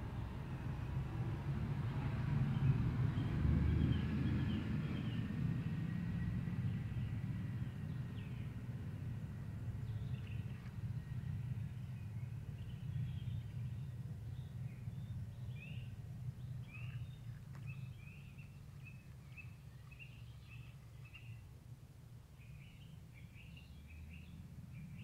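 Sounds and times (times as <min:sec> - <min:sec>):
low steady rumble: 0:00.0 - 0:25.0
songbird chirping: 0:09.6 - 0:25.0.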